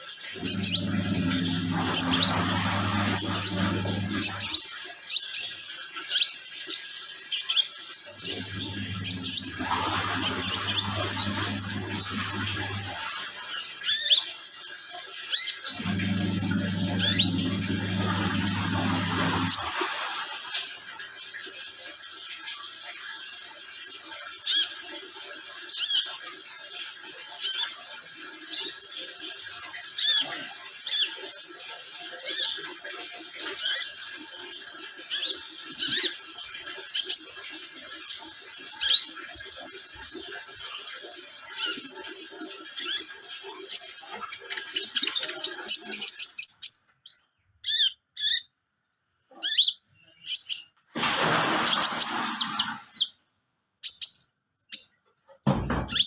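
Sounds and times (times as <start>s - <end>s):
loud burst of noise: 0.4s - 4.5s, 8.2s - 13.2s, 15.8s - 20.1s
faint steady hum: 15.8s - 19.6s.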